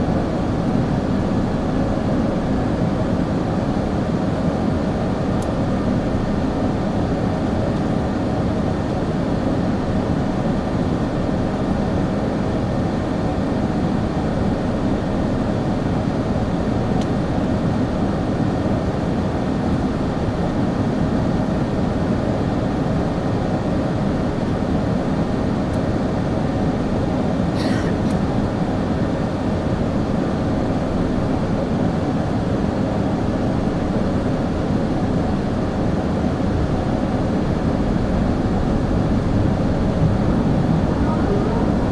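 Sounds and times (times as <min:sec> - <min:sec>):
airliner cabin engine noise: 0:00.0 - 0:41.9
faint steady tones: 0:38.7 - 0:41.9
faint higher sound: 0:40.4 - 0:41.9.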